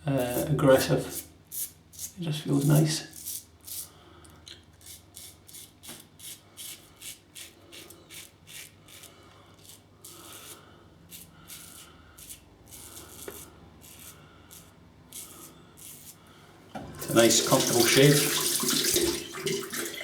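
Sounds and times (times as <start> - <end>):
razor scraping stubble: 4.8 - 16.2.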